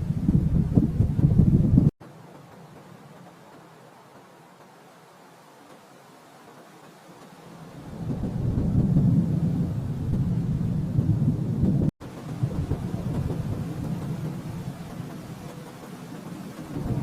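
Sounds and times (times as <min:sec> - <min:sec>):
rolling thunder: 0:00.0 - 0:01.9, 0:07.7 - 0:17.0.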